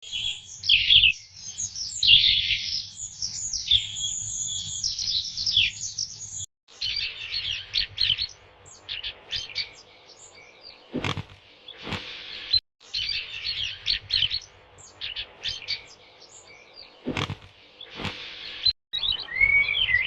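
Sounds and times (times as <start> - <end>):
small songbirds chirping: 0.0 - 20.0.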